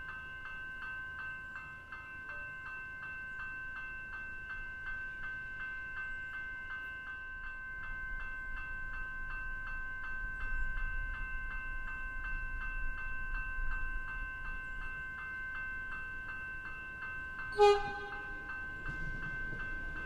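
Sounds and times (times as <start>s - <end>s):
electric train rumbling: 0.0s - 20.0s
train horn blast: 17.5s - 18.5s
level crossing bell ringing: 17.5s - 20.0s.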